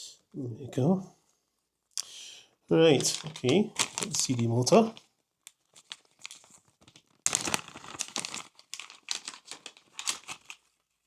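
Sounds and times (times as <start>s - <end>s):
plastic packaging crinkling: 2.9s - 11.0s.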